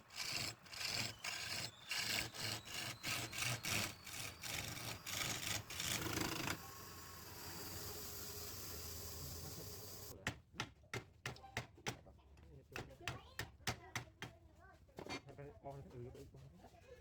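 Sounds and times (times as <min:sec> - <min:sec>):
hand sawing wood: 0:00.0 - 0:10.1
steady machine hum: 0:03.7 - 0:10.1.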